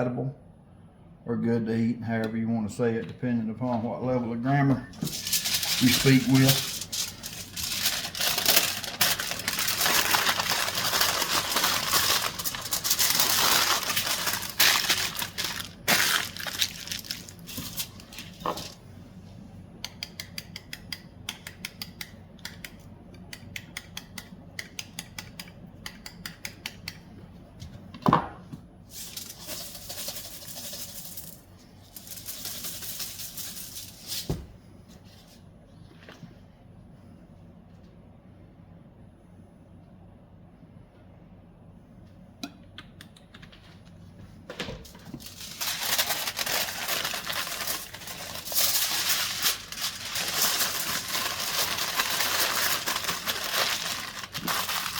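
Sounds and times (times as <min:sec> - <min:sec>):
packaging crinkling and rustling: 0:05.0 - 0:18.8, 0:28.9 - 0:34.3, 0:44.8 - 0:54.9.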